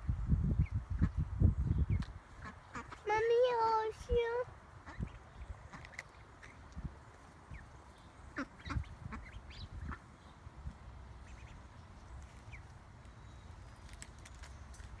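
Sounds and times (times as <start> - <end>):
ducks calling: 1.9 - 3.2, 4.8 - 6.7, 7.5 - 10.2, 11.2 - 11.8
steady low rumble: 4.1 - 15.0.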